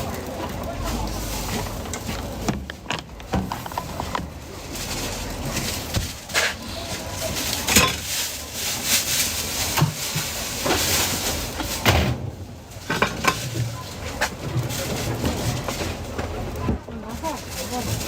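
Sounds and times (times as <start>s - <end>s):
metal utensils clinking on pan: 6.4s - 8.2s.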